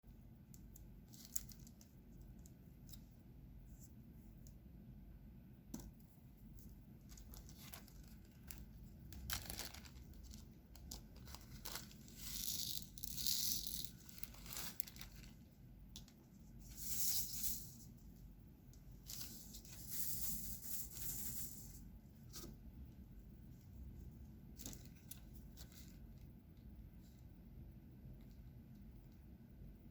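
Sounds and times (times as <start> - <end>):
plastic crinkling and tearing: 1.1 - 2.0, 7.0 - 15.4.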